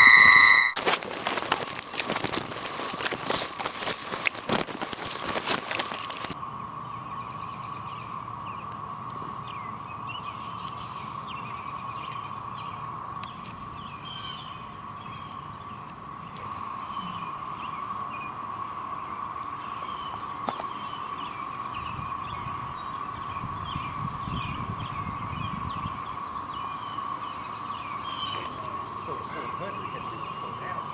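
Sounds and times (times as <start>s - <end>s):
bird chirps: 0.0s - 1.7s, 19.5s - 30.9s
cicadas droning: 0.0s - 30.9s.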